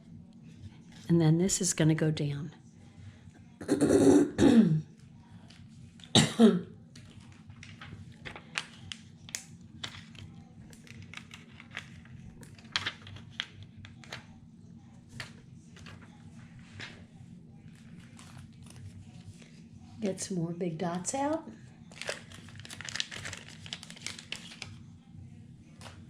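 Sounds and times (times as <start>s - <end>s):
woman clearing her throat: 3.6s - 4.9s, 6.1s - 6.7s
paper rustling and tapping: 7.0s - 14.2s.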